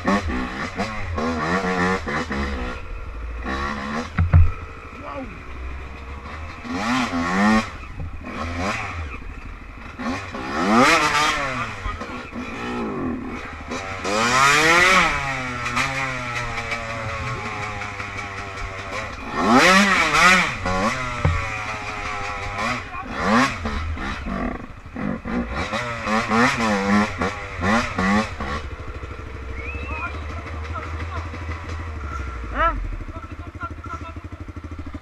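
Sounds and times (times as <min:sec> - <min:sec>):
off-road vehicle engines revving: 0:00.0 - 0:35.0
quick throttle blips: 0:29.3 - 0:31.3.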